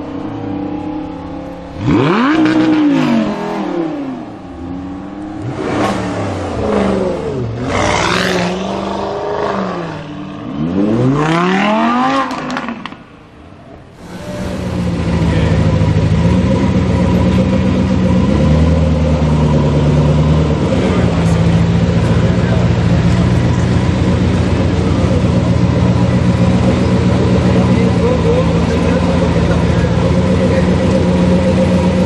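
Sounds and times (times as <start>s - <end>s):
sports car engine revving: 0.0s - 32.0s
engine running steadily: 12.3s - 32.0s.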